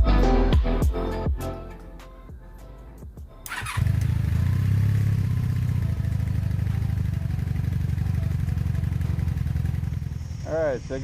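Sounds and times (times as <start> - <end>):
motorcycle engine starting and idling: 3.3 - 11.0.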